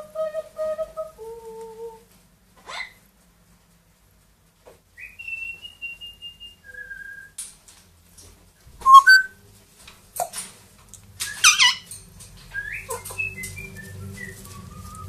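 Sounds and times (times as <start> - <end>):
parrot squawking call: 2.6 - 3.0, 8.8 - 9.3
parrot whistling: 8.8 - 9.4.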